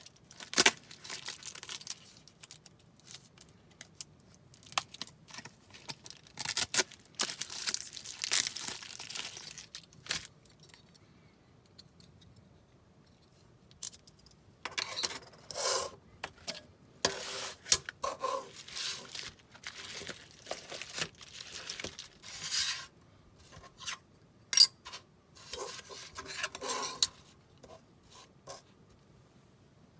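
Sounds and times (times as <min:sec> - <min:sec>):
packaging crinkling and tearing: 0:00.0 - 0:10.6, 0:17.7 - 0:22.5.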